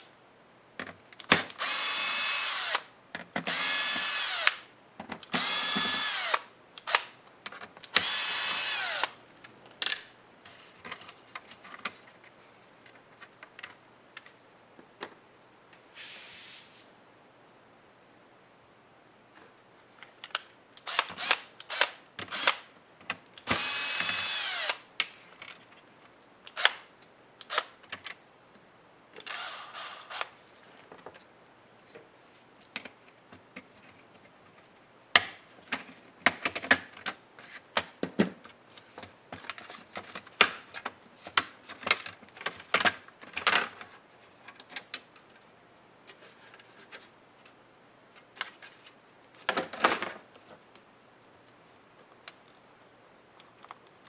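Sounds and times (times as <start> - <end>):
electric screwdriver whirring: 1.3 - 2.9, 3.5 - 4.6, 5.3 - 7.1, 7.9 - 9.2, 23.5 - 24.8, 29.3 - 30.3.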